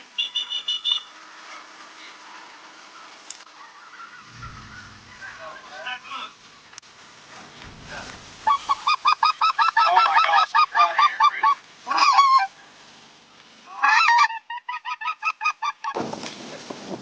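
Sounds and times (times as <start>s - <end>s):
goose yelping calls: 8.4s - 12.5s, 13.7s - 15.9s.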